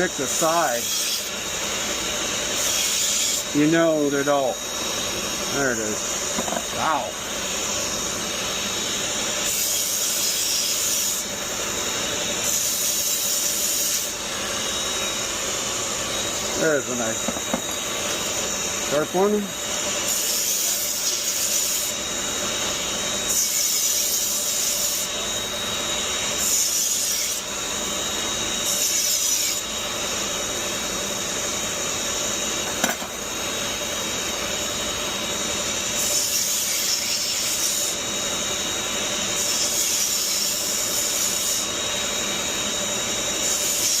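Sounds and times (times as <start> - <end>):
knife being sharpened: 6.4 - 6.7.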